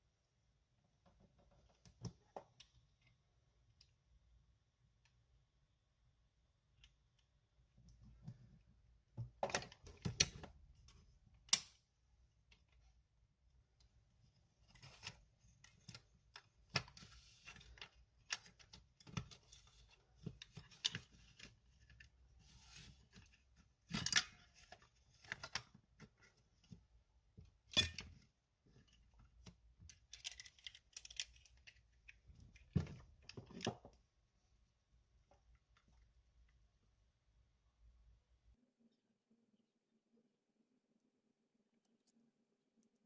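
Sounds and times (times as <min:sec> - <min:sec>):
plastic parts clicking and tapping: 0:27.4 - 0:34.0.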